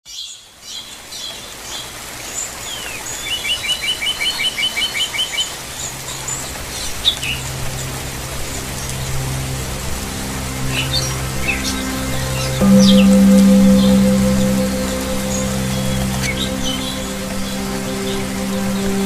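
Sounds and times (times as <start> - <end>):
low sustained music notes: 5.8 - 19.0.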